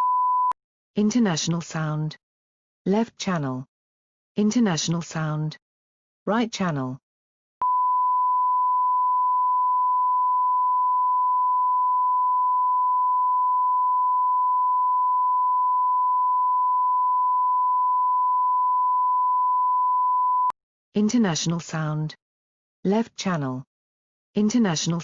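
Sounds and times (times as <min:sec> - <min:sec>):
steady sine-wave tone: 0:07.6 - 0:20.5.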